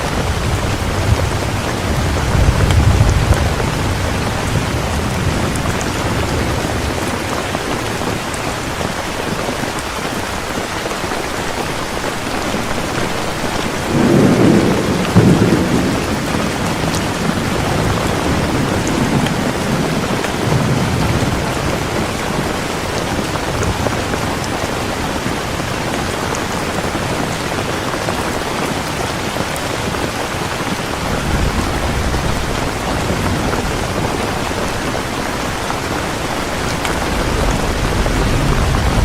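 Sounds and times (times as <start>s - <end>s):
thunder rumbling: 0.0s - 9.8s, 12.6s - 39.0s
heavy rain falling: 0.0s - 39.0s.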